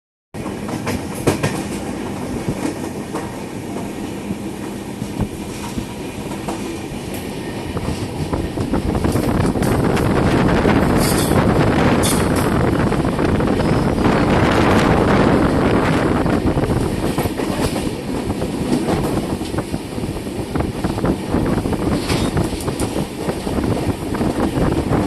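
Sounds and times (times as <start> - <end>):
train rumble: 0.4 - 25.0
wheels clacking over rail joints: 5.0 - 13.0.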